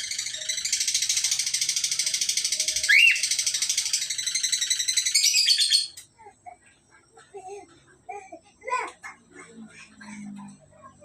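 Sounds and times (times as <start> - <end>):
cockatiels chirping: 2.7 - 6.0.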